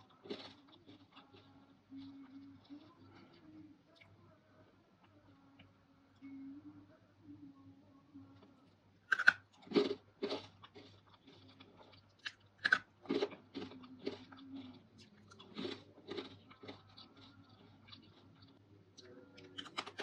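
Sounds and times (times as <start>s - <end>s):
crunchy eating: 0.0s - 5.7s, 8.4s - 20.0s.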